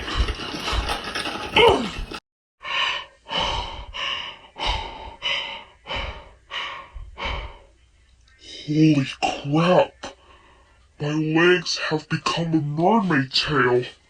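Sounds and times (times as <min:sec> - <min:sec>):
heavy panting: 0:00.0 - 0:07.7.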